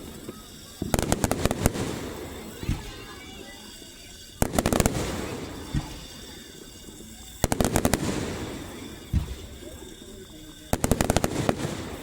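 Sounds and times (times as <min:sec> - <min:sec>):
firework cracks: 0:00.0 - 0:12.0
low firework booms: 0:04.4 - 0:09.8.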